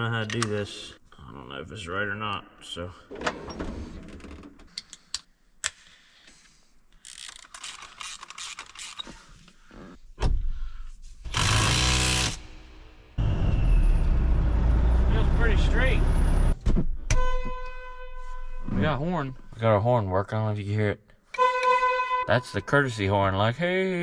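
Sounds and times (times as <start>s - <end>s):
hand tools clicking and ratcheting: 7.0s - 9.1s, 11.3s - 12.4s
loud mechanical burst: 11.3s - 14.5s
low engine rumble: 13.2s - 16.6s.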